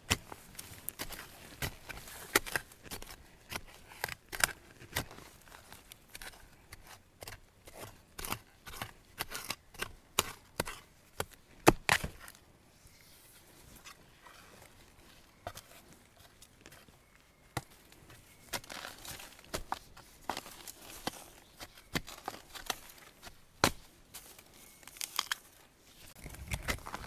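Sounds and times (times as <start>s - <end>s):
bamboo and twigs snapping: 24.8s - 25.5s.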